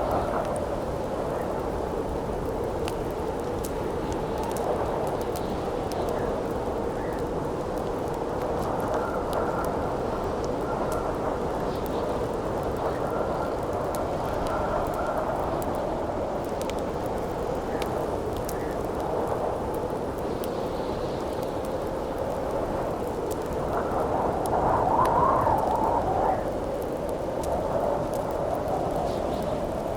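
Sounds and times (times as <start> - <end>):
campfire crackling: 0.0 - 29.9
wind blowing: 22.3 - 29.9.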